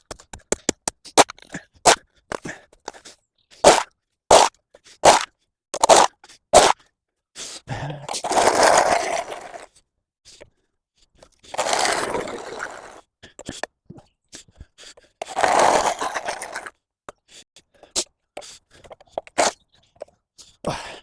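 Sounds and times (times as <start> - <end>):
hand tool scraping path: 0.0 - 6.8, 7.9 - 9.7, 11.4 - 13.0, 15.0 - 16.8, 17.9 - 19.6.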